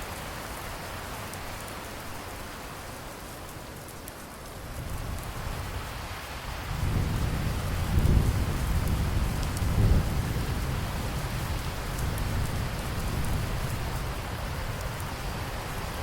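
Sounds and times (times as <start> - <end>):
rain falling: 0.0 - 16.0
rolling thunder rumble: 6.7 - 13.7.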